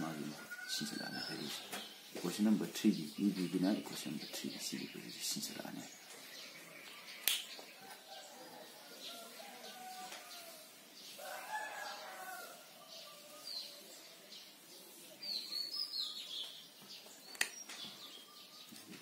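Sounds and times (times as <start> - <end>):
bird chirps: 0.0 - 7.8, 12.8 - 19.0
sharp click: 7.2 - 7.5, 17.3 - 17.7.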